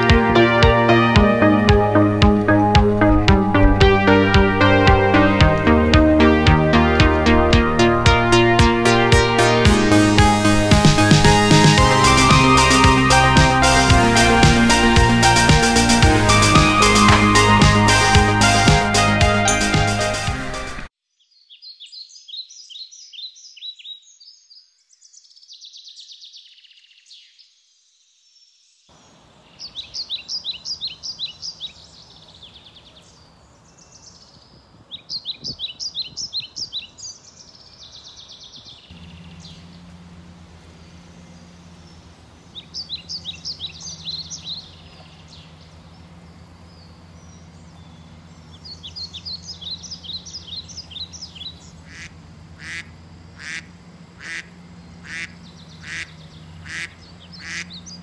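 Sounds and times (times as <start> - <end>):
low steady hum: 0.0 - 20.8, 38.9 - 58.0
outdoor background noise: 0.0 - 58.0
songbird singing: 0.0 - 58.0.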